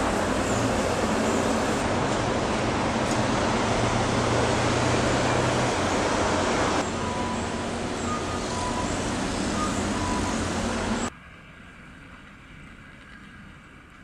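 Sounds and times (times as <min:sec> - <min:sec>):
vehicle traffic noise: 0:00.0 - 0:11.1.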